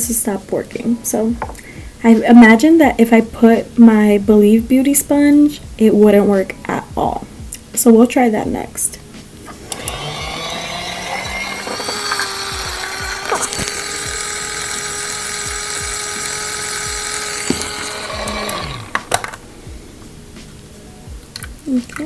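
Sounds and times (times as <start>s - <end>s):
small electric motor whirring: 9.7s - 19.2s.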